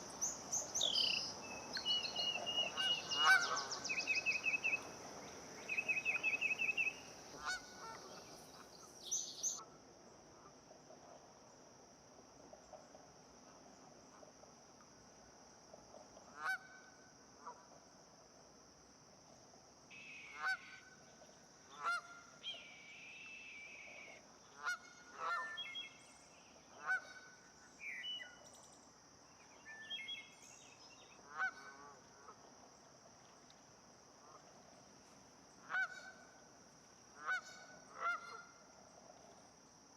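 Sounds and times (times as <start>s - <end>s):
faint high hiss: 0.0s - 10.6s, 16.8s - 39.9s
wild birds calling: 0.8s - 4.9s.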